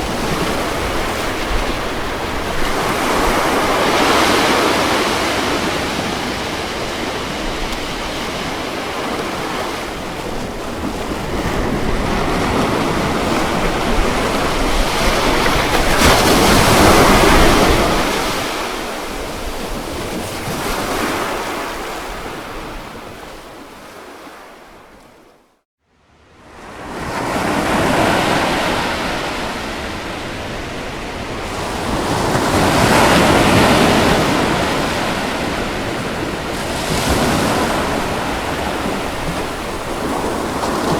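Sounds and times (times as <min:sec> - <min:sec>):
ocean waves breaking: 0:00.0 - 0:24.9, 0:26.5 - 0:40.9.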